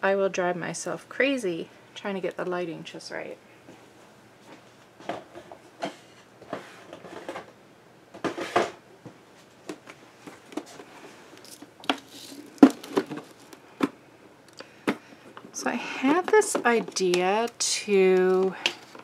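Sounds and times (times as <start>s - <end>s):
rustling: 9.3s - 13.8s.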